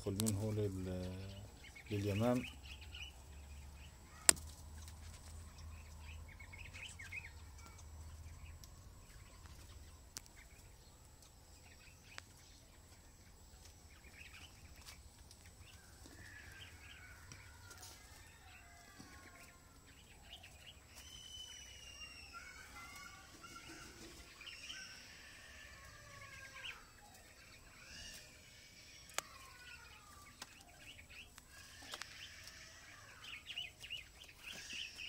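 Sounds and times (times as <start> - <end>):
small bird chirps: 0.0 - 35.0
falling whistled bird calls: 18.3 - 35.0
faint clicks: 29.1 - 30.7.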